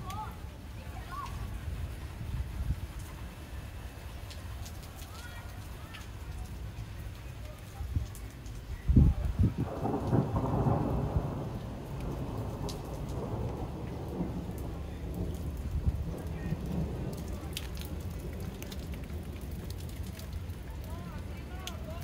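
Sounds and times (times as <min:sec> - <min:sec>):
water drip ticks: 0:00.0 - 0:00.4, 0:01.0 - 0:01.6, 0:04.1 - 0:08.8, 0:11.8 - 0:22.0
rain on plants and pavement: 0:00.0 - 0:22.0.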